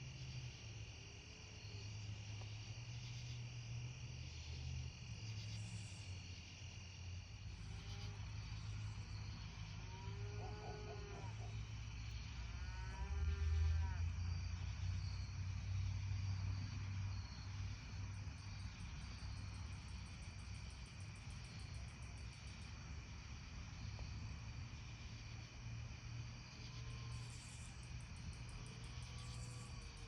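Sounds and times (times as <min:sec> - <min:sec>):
crickets and insects chirping: 0:00.0 - 0:30.0
cow mooing: 0:09.9 - 0:11.5.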